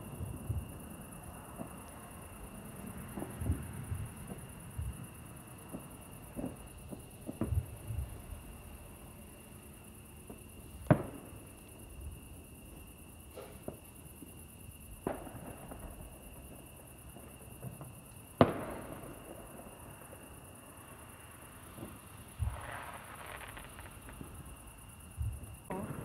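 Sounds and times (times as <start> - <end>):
distant fireworks bangs: 3.0 - 8.7, 10.2 - 11.5, 15.0 - 20.4, 21.4 - 26.0.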